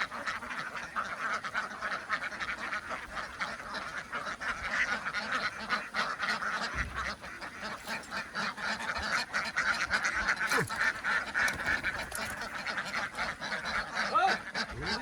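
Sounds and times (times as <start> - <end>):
ducks quacking: 0.0 - 15.0.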